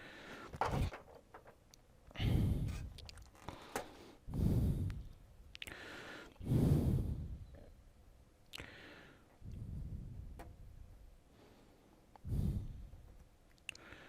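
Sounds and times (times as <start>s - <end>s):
person exhaling heavily: 2.2s - 2.9s, 3.5s - 7.4s, 12.2s - 12.9s.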